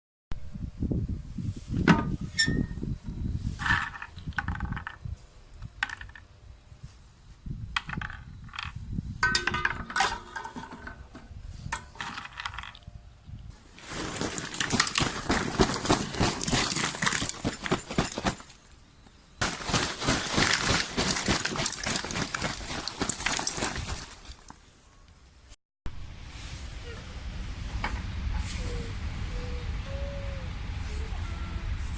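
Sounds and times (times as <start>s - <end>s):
firewood clinking and knocking: 7.8s - 12.8s, 13.8s - 18.7s, 19.4s - 24.5s.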